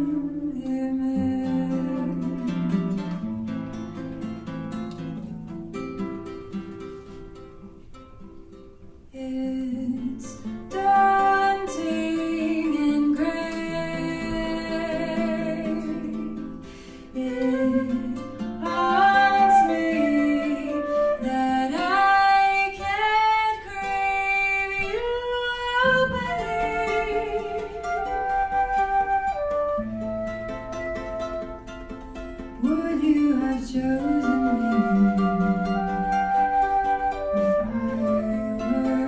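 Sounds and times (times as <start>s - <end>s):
person singing slow song: 0.0s - 3.2s, 9.2s - 28.6s, 32.6s - 36.6s
plucked string accompaniment: 0.0s - 39.0s.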